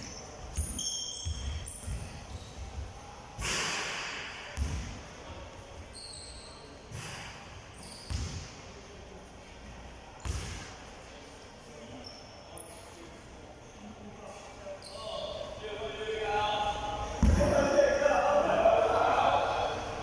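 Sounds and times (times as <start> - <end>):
low thuds in echoing room: 0.0 - 5.2, 6.8 - 8.7, 10.2 - 10.8, 17.0 - 17.8
brief high squeak: 0.1 - 1.8, 5.9 - 6.7, 7.8 - 8.1.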